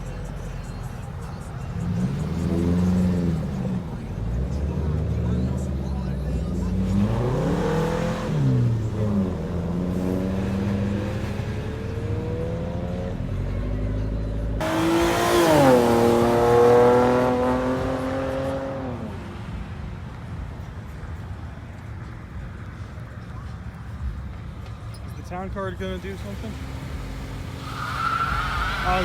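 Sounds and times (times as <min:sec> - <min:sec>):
car engines revving: 0:00.0 - 0:29.0
loud engine climbing in pitch: 0:01.8 - 0:19.0.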